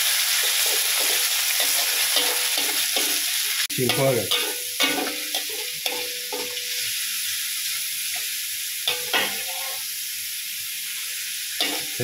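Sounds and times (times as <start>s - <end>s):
chicken sizzling in hot oil: 0.0s - 12.0s
metal spatula scraping a pan: 0.4s - 6.9s, 8.9s - 9.9s, 11.6s - 12.0s.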